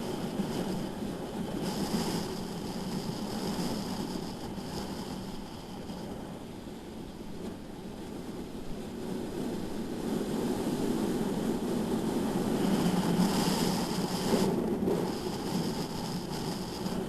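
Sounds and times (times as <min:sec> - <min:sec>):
thin high whine: 0:00.0 - 0:06.5, 0:12.0 - 0:17.0
wind rush: 0:00.0 - 0:17.0.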